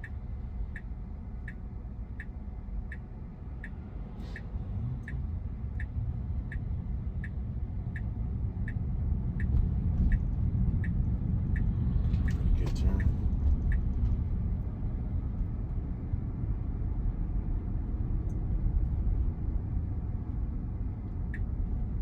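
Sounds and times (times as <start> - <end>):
turn signal ticking: 0.0 - 14.4, 21.2 - 22.0.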